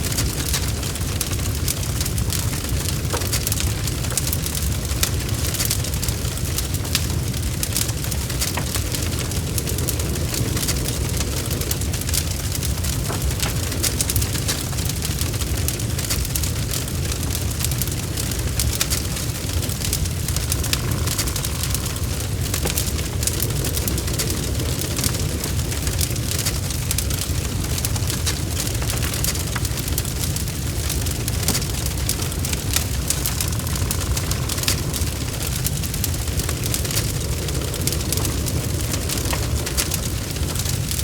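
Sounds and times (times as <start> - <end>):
wood fire crackling: 0.0 - 41.0
low rumble: 18.2 - 41.0.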